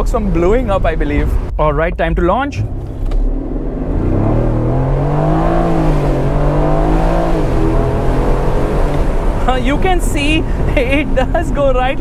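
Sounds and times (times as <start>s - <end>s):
car engine accelerating at full throttle: 2.4s - 9.6s.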